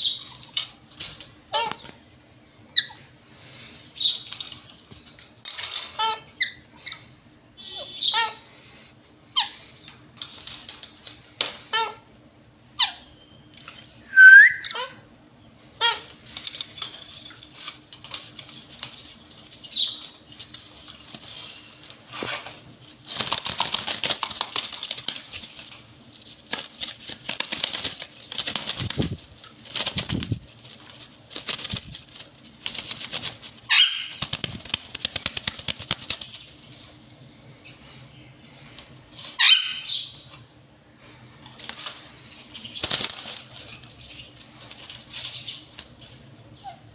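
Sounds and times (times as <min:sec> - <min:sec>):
wings flapping against cage: 0:00.1 - 0:02.0, 0:04.1 - 0:06.4, 0:10.1 - 0:11.8, 0:15.9 - 0:37.0, 0:41.3 - 0:46.3
parrots squawking: 0:01.4 - 0:01.9, 0:05.7 - 0:08.5, 0:11.6 - 0:12.1, 0:12.8 - 0:13.2, 0:14.4 - 0:15.1, 0:15.7 - 0:16.3, 0:33.7 - 0:34.2, 0:39.3 - 0:40.5
parrot whistle: 0:14.1 - 0:14.9.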